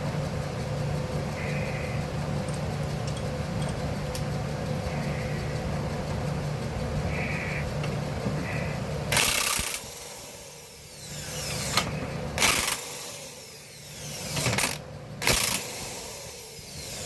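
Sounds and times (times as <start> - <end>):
power drill driving bolts: 9.1 - 17.0.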